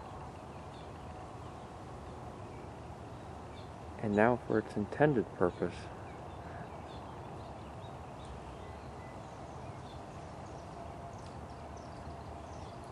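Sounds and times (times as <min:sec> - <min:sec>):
outdoor background hum: 0:00.0 - 0:12.9
small birds chirping: 0:00.0 - 0:12.9.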